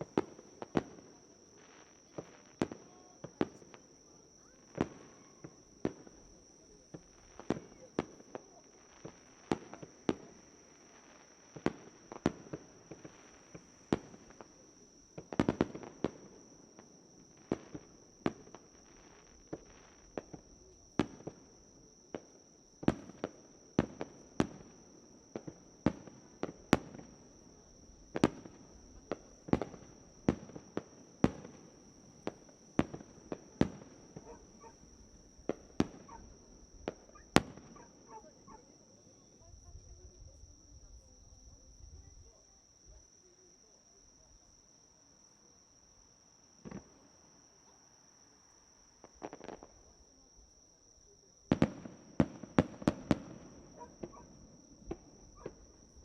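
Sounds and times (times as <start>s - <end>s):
fireworks bursting: 0.0s - 14.6s, 15.2s - 38.7s, 46.6s - 47.1s, 49.0s - 49.9s, 51.5s - 56.0s
insect chirring: 36.0s - 36.4s.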